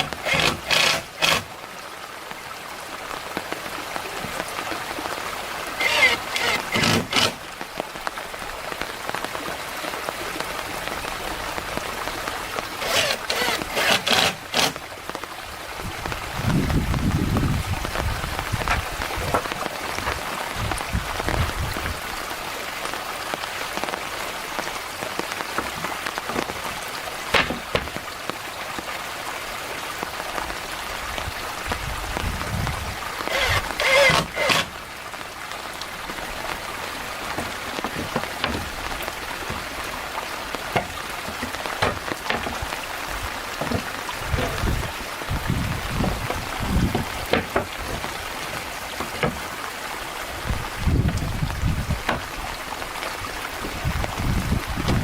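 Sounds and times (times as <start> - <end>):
steady rain falling: 0.0 - 55.0
sharp knocks: 27.3 - 28.0.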